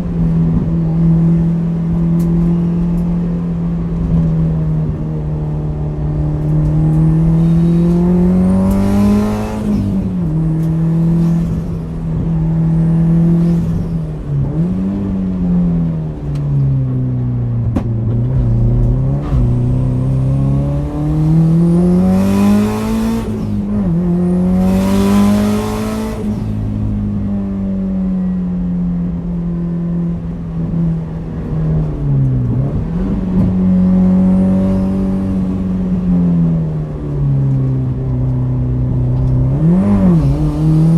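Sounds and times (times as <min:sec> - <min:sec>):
car engine revving: 0:00.0 - 0:27.3, 0:37.8 - 0:40.9.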